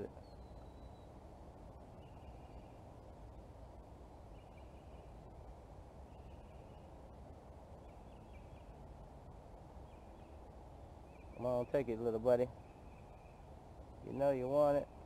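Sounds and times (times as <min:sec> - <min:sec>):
bird call: 0:00.0 - 0:01.1
low background hiss: 0:00.0 - 0:15.0.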